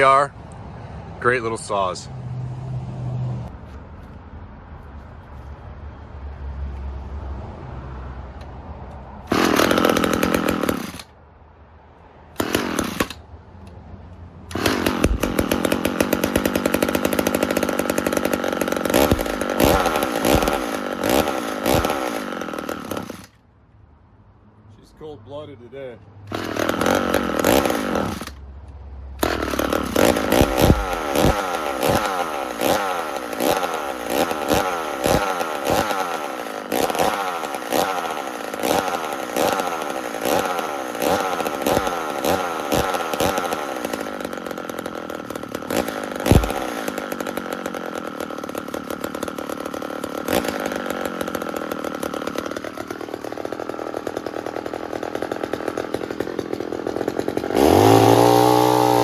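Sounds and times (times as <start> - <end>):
two-stroke chainsaw engine surging: 9.2 - 11.2, 12.3 - 13.2, 14.4 - 23.4, 26.3 - 28.5, 29.1 - 59.0.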